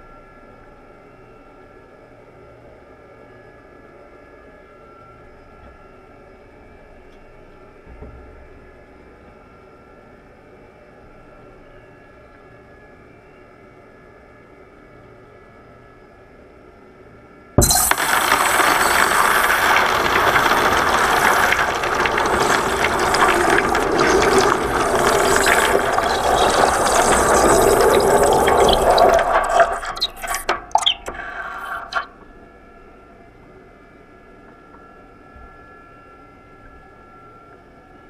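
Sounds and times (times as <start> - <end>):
molten metal hissing in water: 17.6 - 32.1
sputters and crackles: 17.6 - 32.2.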